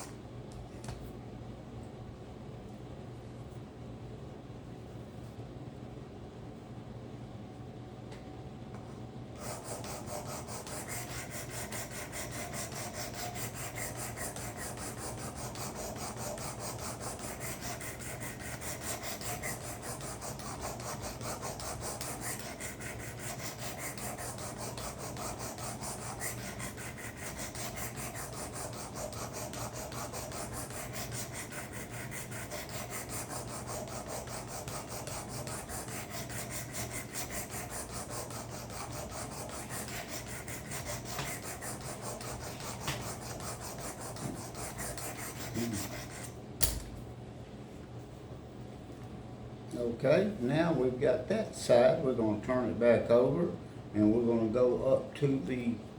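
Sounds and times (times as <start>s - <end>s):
blade rasping on sharpener: 9.4s - 46.8s.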